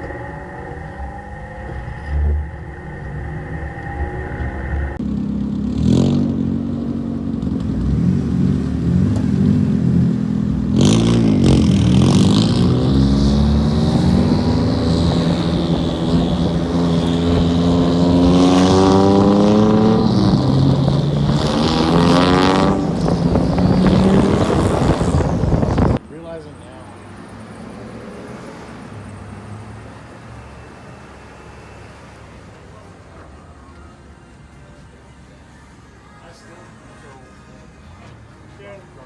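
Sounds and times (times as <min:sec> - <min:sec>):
car engine revving hard: 0:03.3 - 0:26.0.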